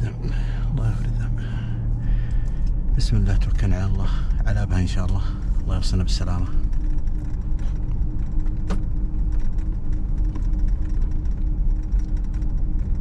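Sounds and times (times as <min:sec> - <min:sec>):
car engine and road rumble: 0:00.0 - 0:13.0
vehicle knocks and rattles: 0:05.8 - 0:13.0.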